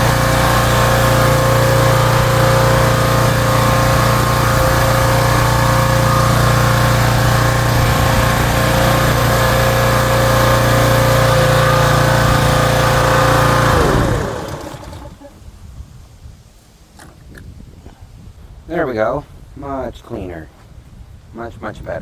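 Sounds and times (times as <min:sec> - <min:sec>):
small engine running: 0:00.0 - 0:15.3.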